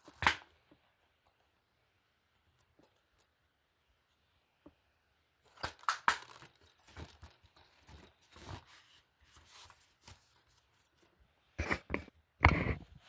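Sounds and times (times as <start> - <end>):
rustling and scraping: 6.2 - 13.0.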